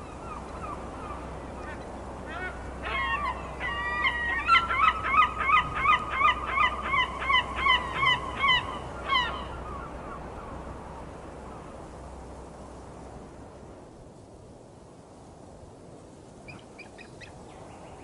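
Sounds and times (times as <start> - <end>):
seagull calling: 0.0 - 11.8
faint steady hiss: 0.0 - 18.0.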